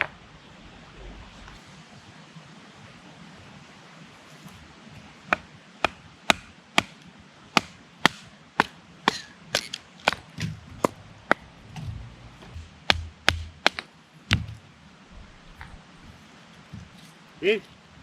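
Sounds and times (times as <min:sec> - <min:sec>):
axe chopping wood: 0:05.3 - 0:07.0, 0:07.6 - 0:14.6.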